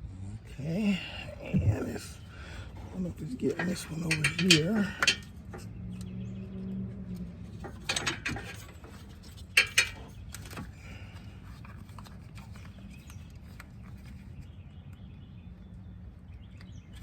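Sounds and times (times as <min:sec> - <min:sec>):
metal pick clicking and scraping: 0:02.5 - 0:06.1, 0:07.2 - 0:10.8.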